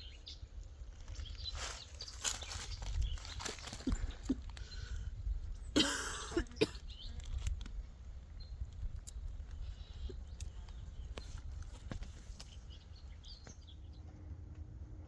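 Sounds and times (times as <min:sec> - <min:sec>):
person coughing: 0:05.8 - 0:06.9.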